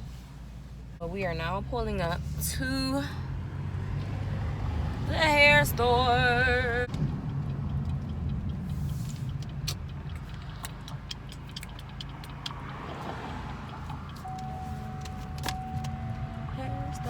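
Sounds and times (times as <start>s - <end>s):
car engine humming: 0.0s - 17.0s
light clicks and ticks: 6.7s - 16.3s
steady held tone: 14.2s - 17.0s.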